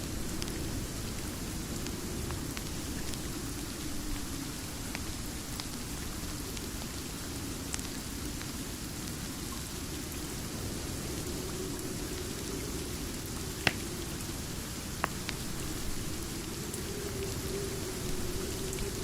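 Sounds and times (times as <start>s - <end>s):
steady rain: 0.0s - 19.0s
fireplace crackling pops: 13.6s - 13.9s.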